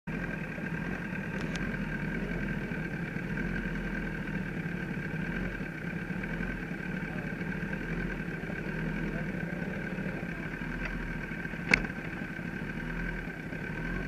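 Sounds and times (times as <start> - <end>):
motorcycle engine idling: 0.1 - 14.0.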